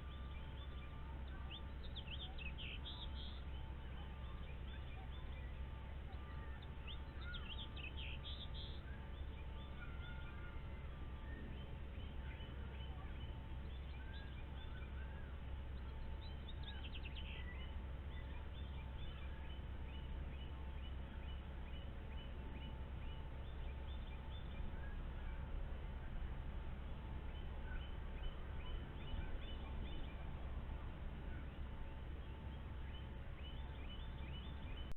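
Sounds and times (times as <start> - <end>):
birds chirping and calling: 0.0 - 34.9
faint electrical hum: 0.0 - 34.9.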